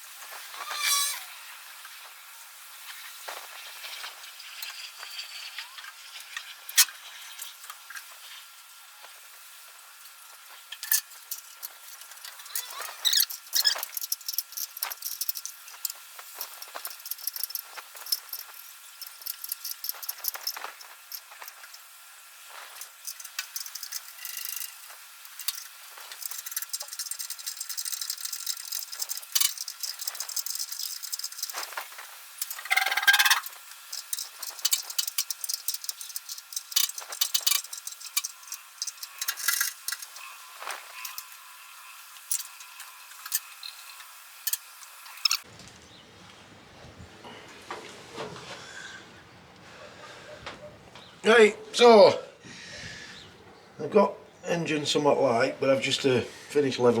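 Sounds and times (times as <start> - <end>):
short squeak: 0.6 - 1.3, 12.4 - 13.9
metallic clinks and rattles: 10.7 - 21.9, 22.5 - 41.3.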